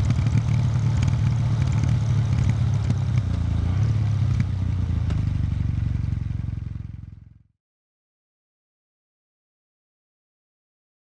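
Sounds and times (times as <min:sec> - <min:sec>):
motorcycle engine running at low revs: 0:00.0 - 0:07.6.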